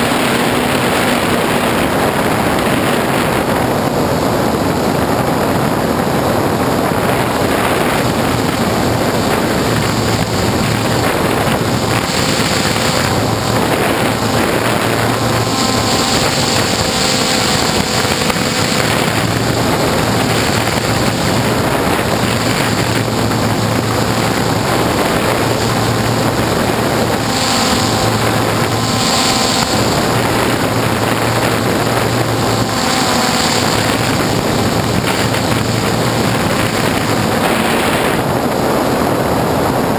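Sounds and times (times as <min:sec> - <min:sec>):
drone propellers whirring: 0:00.0 - 0:39.9
wind on microphone: 0:00.0 - 0:39.9.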